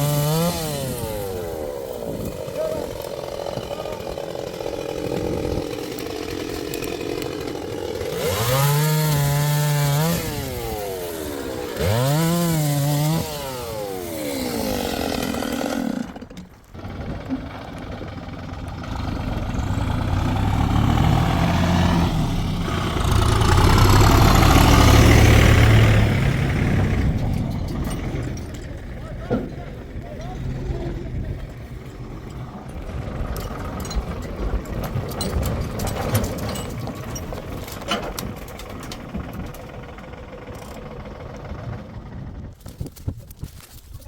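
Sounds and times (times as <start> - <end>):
chainsaw revving: 0.0 - 42.3
low rough engine sound: 15.2 - 43.0.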